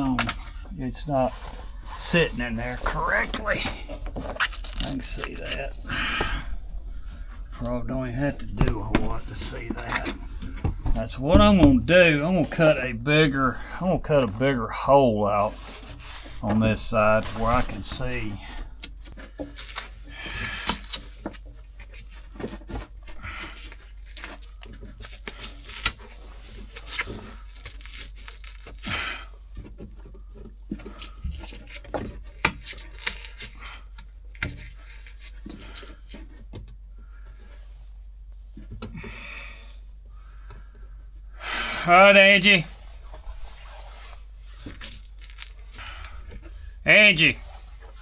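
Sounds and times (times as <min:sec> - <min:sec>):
material scraping and ripping: 0:00.0 - 0:05.9, 0:15.4 - 0:18.4, 0:19.3 - 0:29.3, 0:30.5 - 0:35.6, 0:42.7 - 0:45.9.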